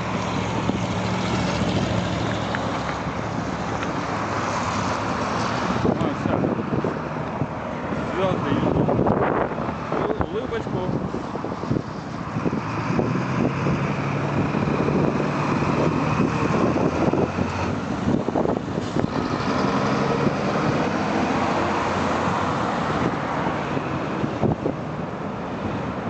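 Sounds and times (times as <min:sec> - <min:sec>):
road noise: 0:00.0 - 0:26.0
vehicle engines running: 0:00.0 - 0:26.0.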